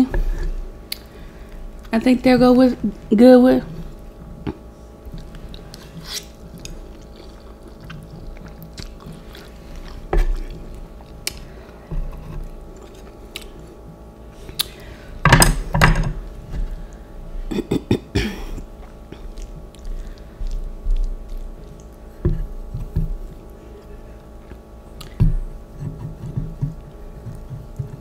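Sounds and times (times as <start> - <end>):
person chewing noodles: 3.8 - 15.0, 18.4 - 28.0.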